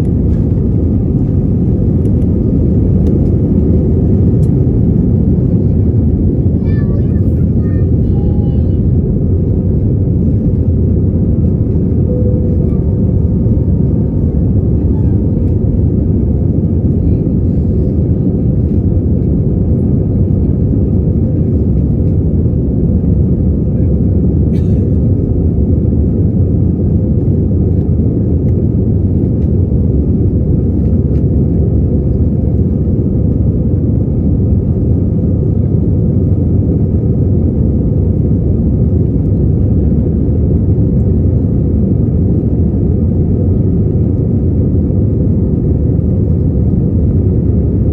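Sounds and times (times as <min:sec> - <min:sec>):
jet engine rumble in cabin: 0:00.0 - 0:47.9
faint thin tone: 0:12.1 - 0:13.0.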